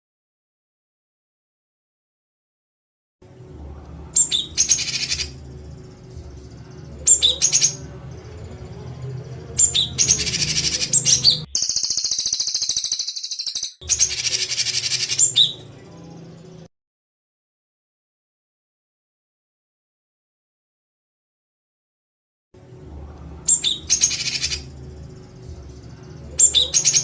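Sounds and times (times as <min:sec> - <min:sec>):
low steady hum: 0:03.3 - 0:04.6, 0:05.3 - 0:10.6
songbird harsh rattling call: 0:11.5 - 0:15.5.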